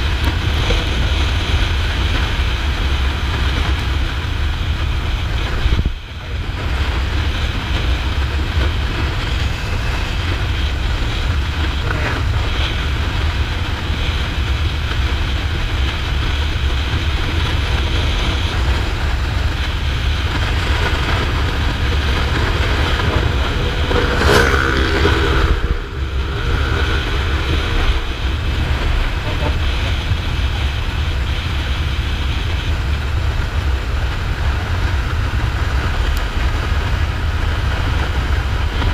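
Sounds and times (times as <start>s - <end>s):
motorcycle engine running: 0.0s - 38.9s
wind rush on microphone: 0.0s - 38.9s
loud pitched sound: 8.8s - 12.4s.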